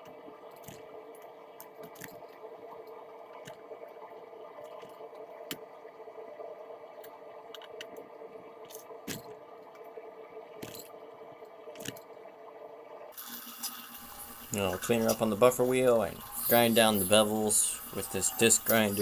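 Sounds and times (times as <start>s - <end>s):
hot metal crackling in water: 13.2s - 19.0s.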